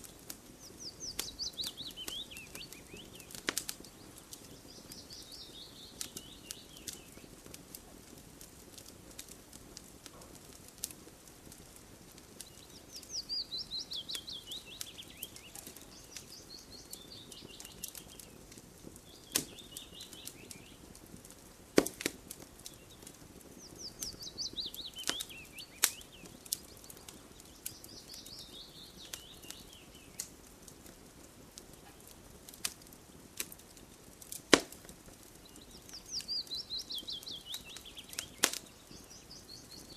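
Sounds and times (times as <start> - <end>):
campfire crackling and popping: 0.0 - 39.9
songbird trilling: 0.7 - 3.4, 12.6 - 18.3, 23.6 - 30.1, 35.4 - 39.9.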